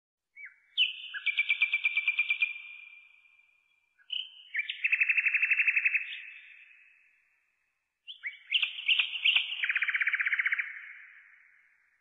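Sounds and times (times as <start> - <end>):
songbird trilling: 0.4 - 2.7, 4.0 - 6.5, 8.1 - 11.1.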